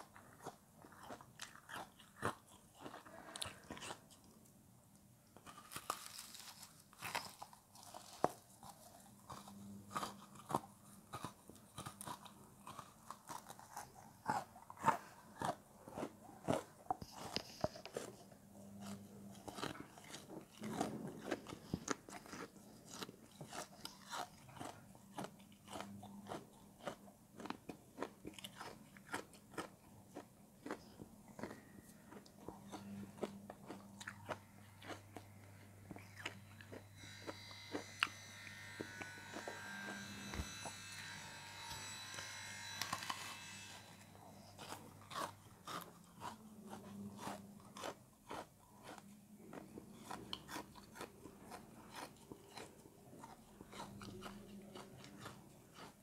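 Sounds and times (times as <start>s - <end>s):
crunching frozen food: 0.0s - 4.4s, 5.4s - 40.9s, 42.6s - 56.0s.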